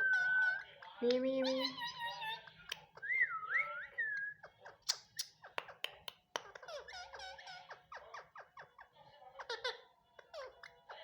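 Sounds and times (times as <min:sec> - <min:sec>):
parakeet chattering: 0:00.0 - 0:03.2, 0:03.8 - 0:11.0
parakeet whistling: 0:00.0 - 0:05.4
beak clicks and chirps: 0:00.0 - 0:11.0.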